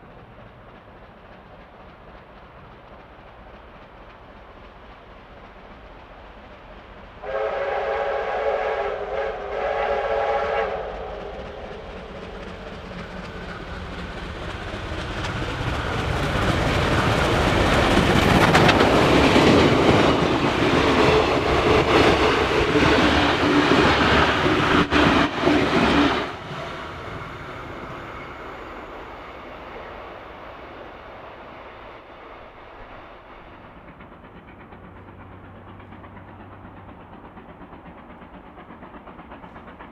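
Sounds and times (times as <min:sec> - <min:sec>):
train passing on rails: 0:00.0 - 0:39.9
steam locomotive whistle: 0:07.2 - 0:11.7.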